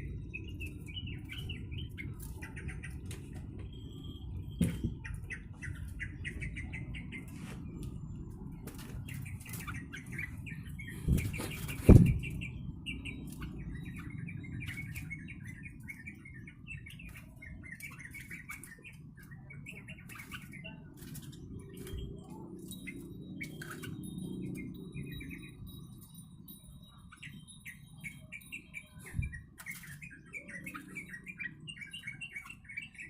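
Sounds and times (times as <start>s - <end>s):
bird chirping: 0.0s - 33.0s
wings fluttering: 7.2s - 12.6s, 17.1s - 24.1s.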